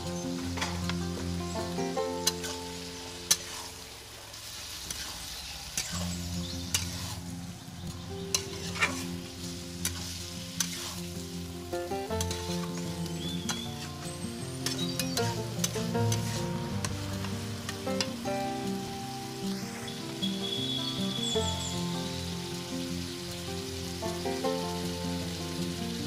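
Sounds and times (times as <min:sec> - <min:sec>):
music of held notes: 0:00.0 - 0:03.8, 0:05.8 - 0:26.0
curry sizzling in a pan: 0:00.0 - 0:26.0
metal spatula scraping a pan: 0:02.2 - 0:03.9, 0:04.6 - 0:07.3, 0:08.3 - 0:11.1, 0:12.1 - 0:17.0.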